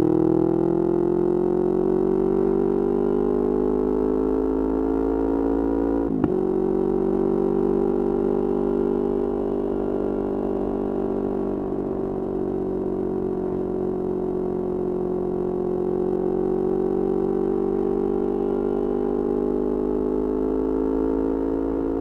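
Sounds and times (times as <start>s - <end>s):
motorcycle engine running: 6.0s - 22.0s.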